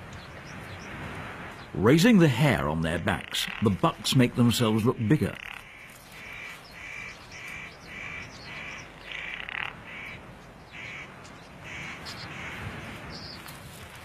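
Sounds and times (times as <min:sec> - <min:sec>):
bird giving crow-like calls: 0:05.3 - 0:12.8.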